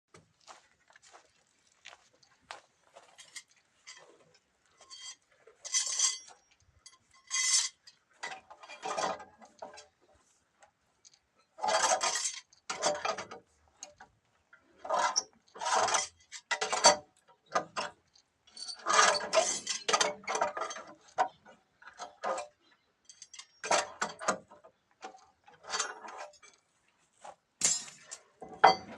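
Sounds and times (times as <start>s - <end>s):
metal clinking and scraping: 3.0s - 10.0s, 11.0s - 14.0s, 14.6s - 28.9s.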